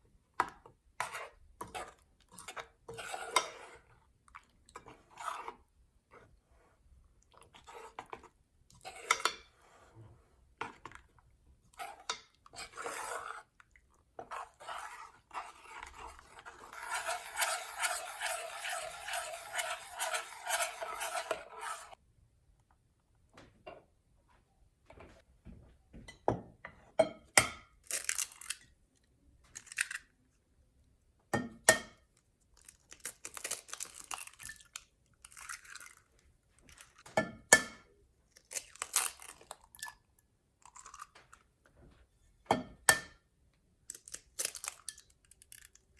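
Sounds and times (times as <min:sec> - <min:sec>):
utensil scraping a bowl: 0:01.0 - 0:03.9, 0:04.8 - 0:06.7, 0:11.7 - 0:13.6, 0:14.2 - 0:22.0.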